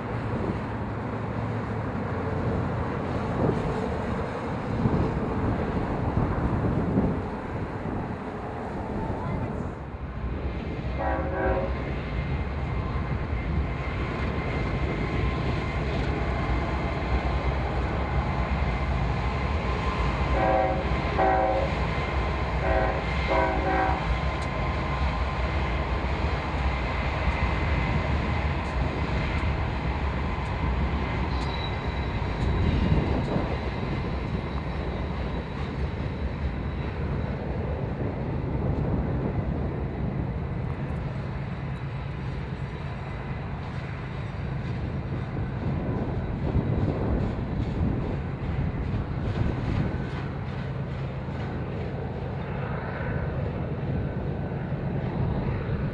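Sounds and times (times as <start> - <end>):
locomotive rumble: 0.0 - 55.9
train air horn blasts: 11.0 - 11.8, 20.3 - 21.8, 22.6 - 24.2.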